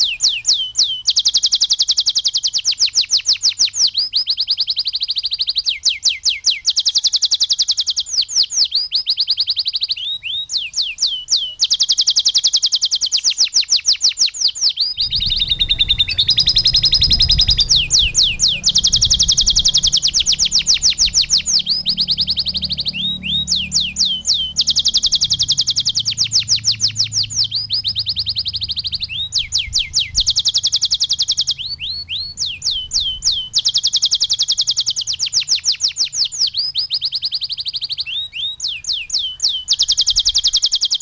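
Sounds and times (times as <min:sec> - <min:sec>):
canary singing trills: 0:00.0 - 0:41.0
low rumble: 0:15.0 - 0:30.3.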